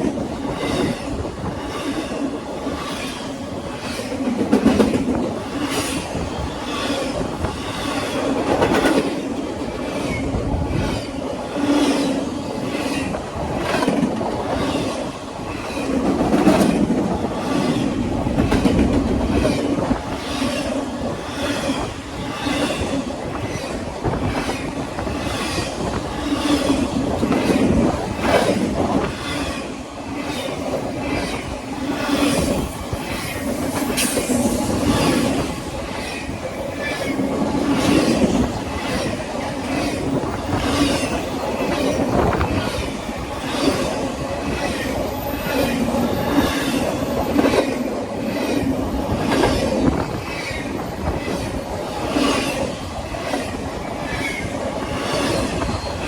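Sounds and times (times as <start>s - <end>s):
freight train rumbling: 0.0s - 56.0s.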